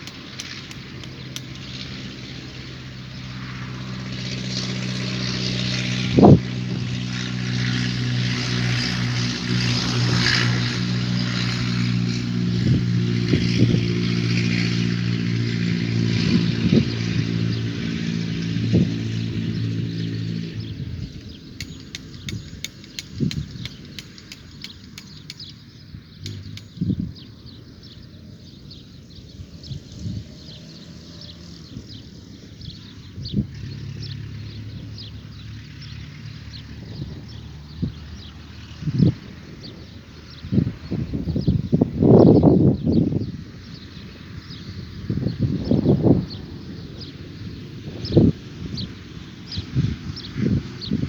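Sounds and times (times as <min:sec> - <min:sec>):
engine running: 0:00.0 - 0:40.8.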